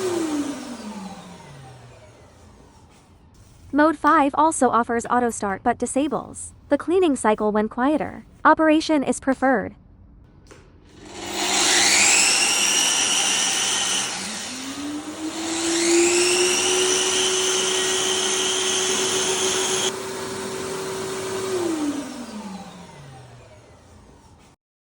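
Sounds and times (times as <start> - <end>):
lower motor hum: 0.0 - 3.3, 11.0 - 24.5
high motor whine: 0.0 - 3.5, 11.0 - 24.3.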